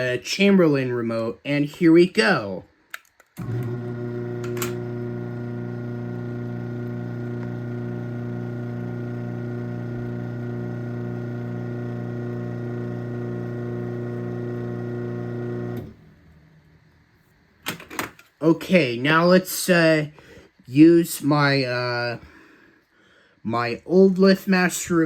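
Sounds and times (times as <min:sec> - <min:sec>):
motor click: 0:02.9 - 0:05.0
garage door opener motor humming: 0:03.4 - 0:16.8.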